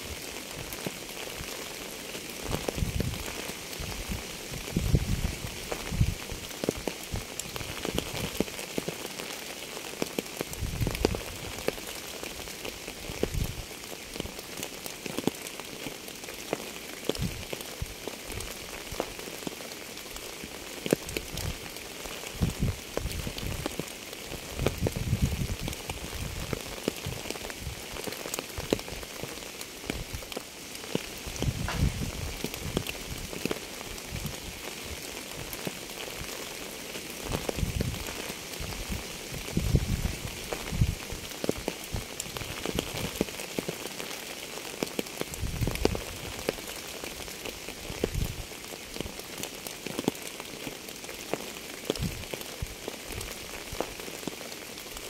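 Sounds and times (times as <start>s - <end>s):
raindrops clicking on a surface: 0.0s - 55.0s
steady rain hiss: 0.0s - 55.0s
low thud: 31.6s - 32.1s.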